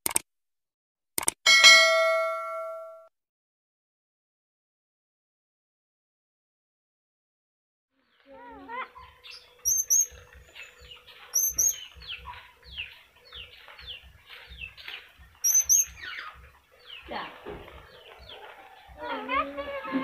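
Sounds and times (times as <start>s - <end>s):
birds chirping: 8.0s - 20.0s.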